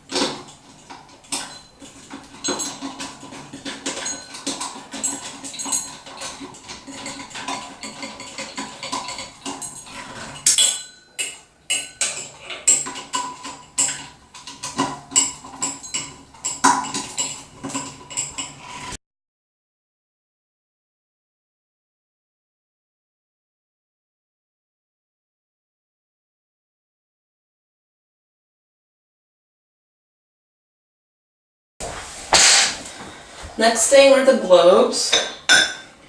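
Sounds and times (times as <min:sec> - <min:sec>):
screwdriver clinking on metal: 0:00.0 - 0:18.9, 0:35.0 - 0:36.0.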